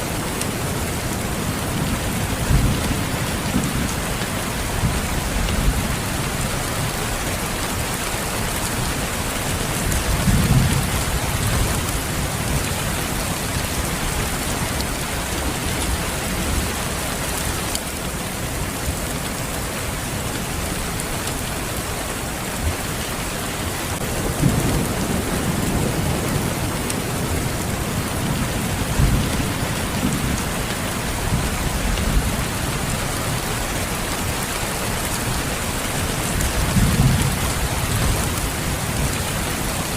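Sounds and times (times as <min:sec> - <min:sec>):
steady rain falling: 0:00.0 - 0:39.9
low rolls of thunder: 0:24.0 - 0:30.6.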